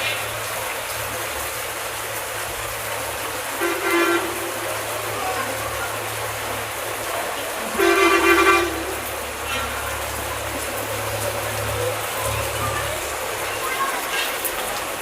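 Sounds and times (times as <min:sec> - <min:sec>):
heavy rain hissing: 0:00.0 - 0:15.0
vehicle horn: 0:03.6 - 0:05.6, 0:07.7 - 0:10.0.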